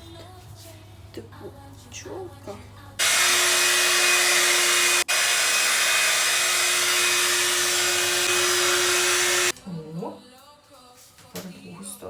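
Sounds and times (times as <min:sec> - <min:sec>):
hot air brush running: 0:03.0 - 0:09.5.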